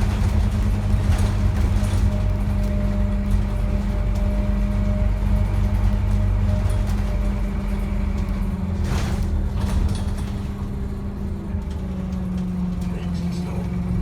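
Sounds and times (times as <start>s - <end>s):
bus engine running: 0.0s - 14.0s.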